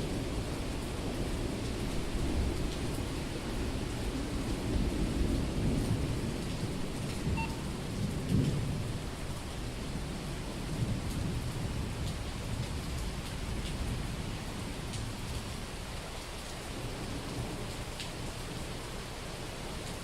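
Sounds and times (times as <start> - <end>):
heavy rain on street: 0.0 - 20.0
rolling thunder: 1.0 - 9.7.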